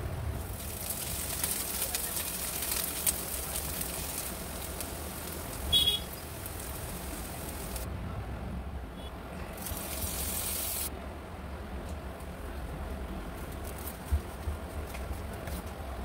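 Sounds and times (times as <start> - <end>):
patties sizzling in hot oil: 0.4 - 7.9, 9.6 - 10.9.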